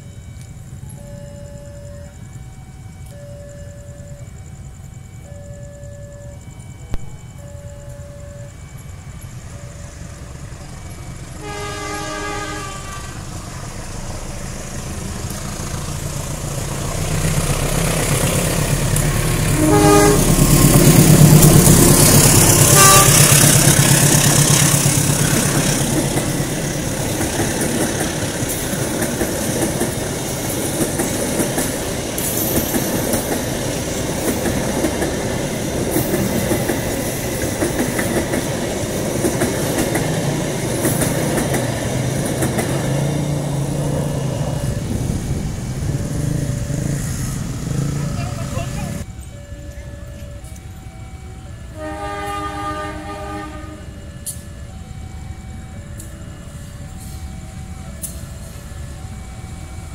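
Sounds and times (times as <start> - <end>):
locomotive engine rumble: 0.0 - 59.9
train horn blasts: 11.4 - 13.4, 19.0 - 24.9, 51.6 - 54.4
wheels clacking over rail joints: 13.9 - 50.7.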